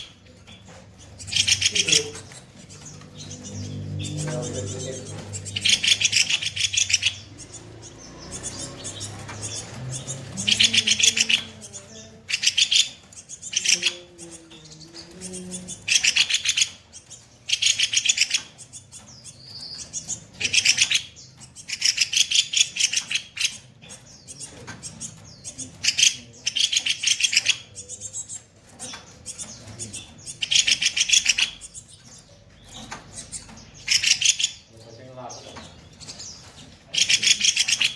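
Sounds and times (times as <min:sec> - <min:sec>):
songbird calling in rattling bursts: 0:00.0 - 0:37.9.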